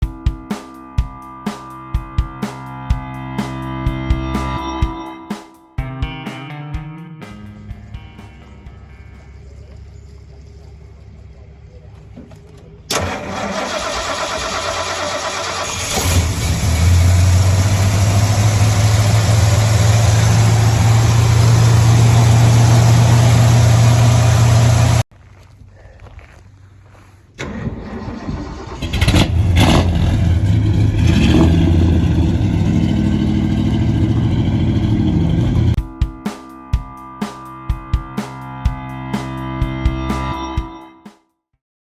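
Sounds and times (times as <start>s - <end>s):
engine revving: 12.9s - 25.0s, 28.6s - 35.8s
pickup truck engine starting: 12.9s - 25.0s, 27.4s - 35.7s.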